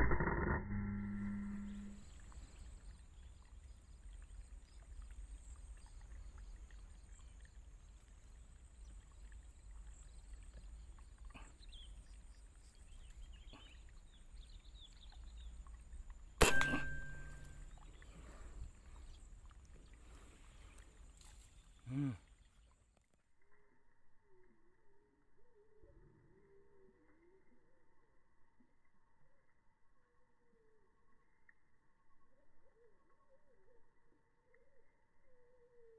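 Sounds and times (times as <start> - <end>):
high thin whine: 0.0 - 2.3
faint bird chirps: 0.8 - 15.8, 16.5 - 22.8, 24.1 - 35.9
air rifle shot: 16.4 - 17.5.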